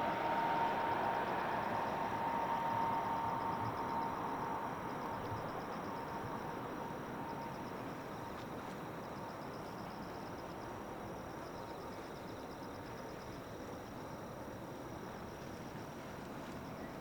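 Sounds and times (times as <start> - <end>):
distant jet engine noise: 0.0 - 7.4
insects chirping: 0.0 - 17.0.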